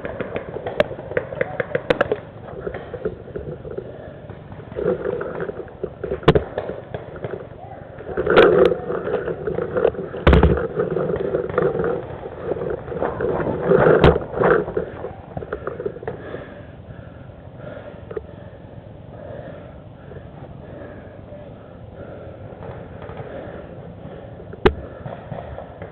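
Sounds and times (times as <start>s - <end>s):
handling noise: 0.0s - 16.4s.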